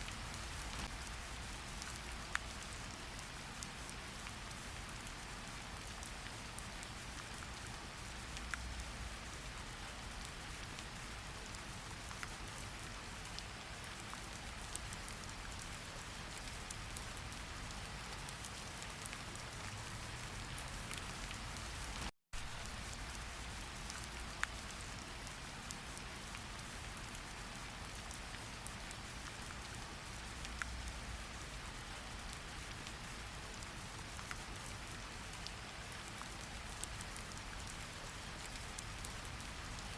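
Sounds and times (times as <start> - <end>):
raindrops ticking: 0.0 - 3.2, 14.4 - 39.9
steady rain falling: 0.0 - 39.9.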